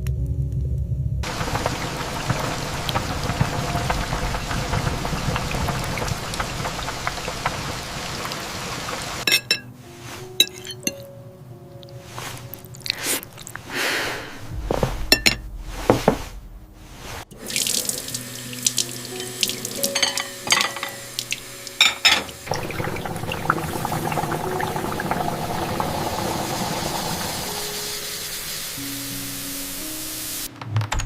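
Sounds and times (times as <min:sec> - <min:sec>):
dishes and utensils clinking: 0:09.2 - 0:11.1, 0:15.1 - 0:15.4, 0:19.2 - 0:22.9.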